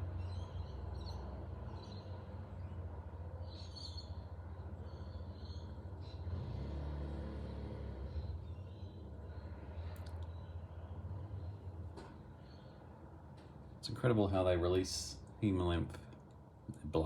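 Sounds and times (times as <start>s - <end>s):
faint bird chirps: 0.1s - 6.4s, 7.4s - 11.8s.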